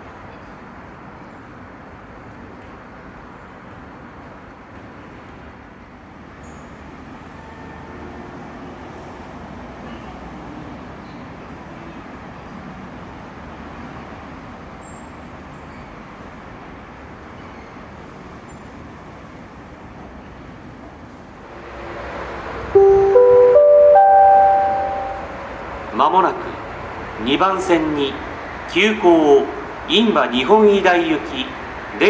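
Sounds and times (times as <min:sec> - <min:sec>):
station platform rumble: 0:13.0 - 0:31.9.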